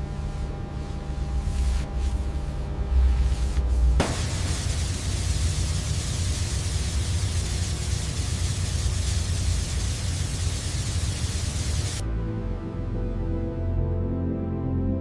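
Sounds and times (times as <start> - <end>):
loud rushing hiss: 4.0 - 12.0
background music: 12.0 - 15.0.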